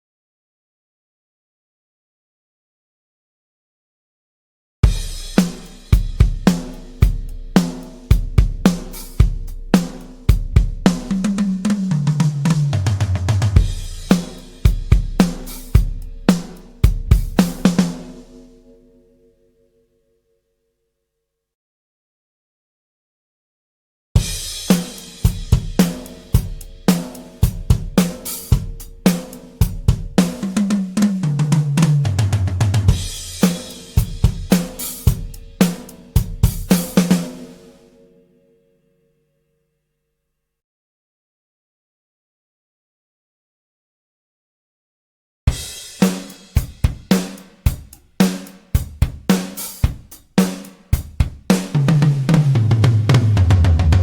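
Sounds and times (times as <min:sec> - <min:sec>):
drum fill stepping down in pitch: 0:04.8 - 0:18.6, 0:24.2 - 0:37.7, 0:45.5 - 0:54.0
drum kit groove: 0:04.8 - 0:18.6, 0:24.2 - 0:37.8, 0:45.5 - 0:54.0
tom fill: 0:04.8 - 0:18.6.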